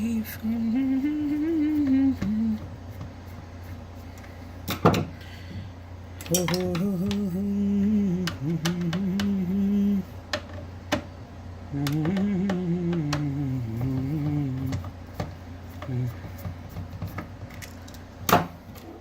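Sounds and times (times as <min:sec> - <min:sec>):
man humming: 0:00.0 - 0:02.9, 0:06.3 - 0:10.2, 0:11.7 - 0:14.9, 0:15.7 - 0:16.5
low electrical hum: 0:00.0 - 0:19.0.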